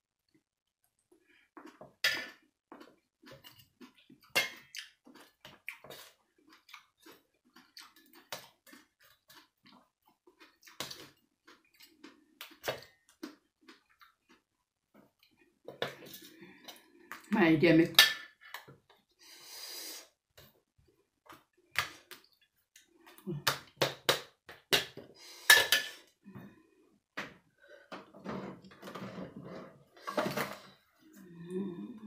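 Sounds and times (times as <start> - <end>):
wet chewing and lip-smacking: 2.8 - 14.5.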